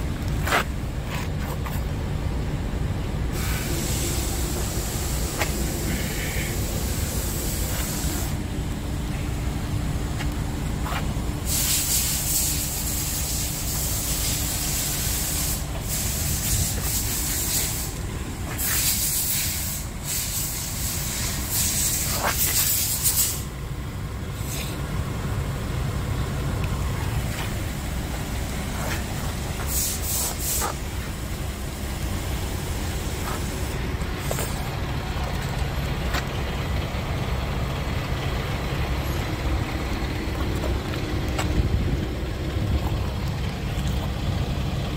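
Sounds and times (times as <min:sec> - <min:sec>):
diesel truck engine idling: 0:00.0 - 0:44.9
hissing air: 0:03.3 - 0:08.6, 0:11.4 - 0:23.6, 0:26.8 - 0:34.8.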